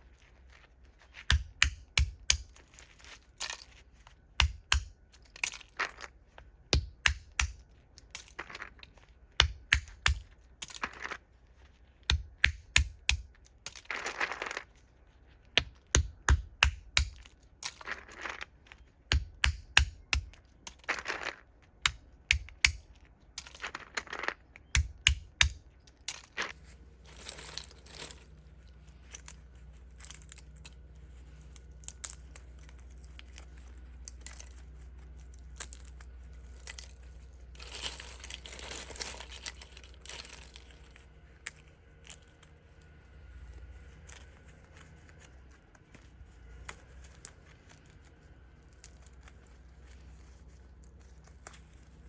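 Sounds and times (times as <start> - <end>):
shells crunching: 0.0 - 11.4, 12.1 - 52.0
faint low hum: 0.0 - 52.0
walnut shells cracking: 1.0 - 11.3, 12.0 - 43.0.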